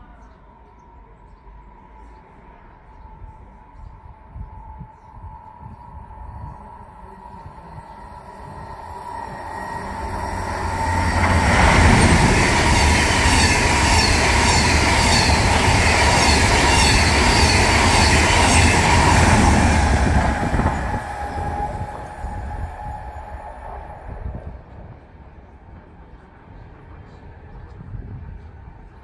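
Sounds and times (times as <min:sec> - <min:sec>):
high-speed train passing: 0:01.0 - 0:29.0
high whine: 0:05.1 - 0:24.6.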